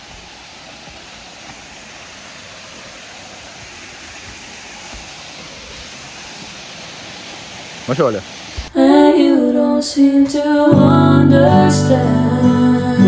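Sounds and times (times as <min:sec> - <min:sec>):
waterfall pouring into pool: 0:00.0 - 0:08.7.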